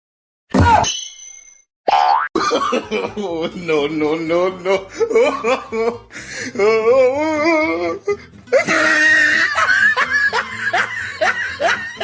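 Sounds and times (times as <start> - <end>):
person laughing hard: 2.4 - 6.8, 8.5 - 12.0
background music: 2.4 - 12.0.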